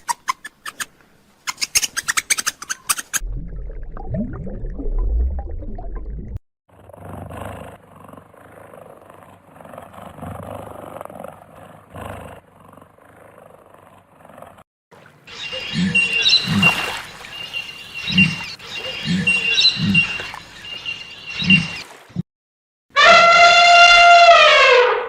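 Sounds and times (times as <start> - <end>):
deep animal growling: 6.7 - 14.6.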